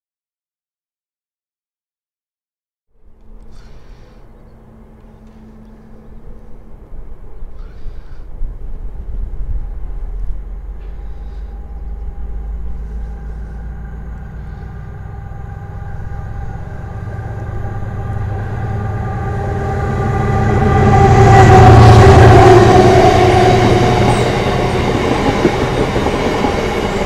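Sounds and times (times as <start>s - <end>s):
diesel locomotive engine rumble: 3.0s - 27.0s.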